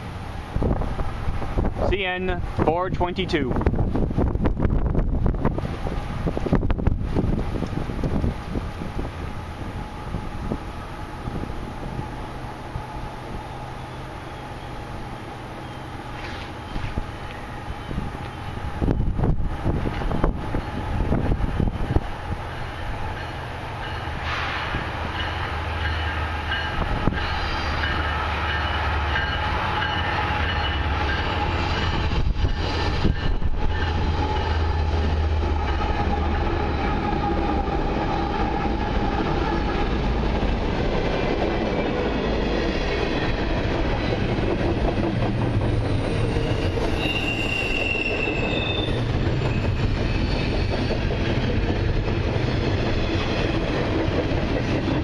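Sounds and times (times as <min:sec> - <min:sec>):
diesel locomotives rumbling past: 0:00.0 - 0:55.0
high wheel squeal: 0:23.2 - 0:36.0, 0:45.4 - 0:51.5, 0:52.9 - 0:53.7.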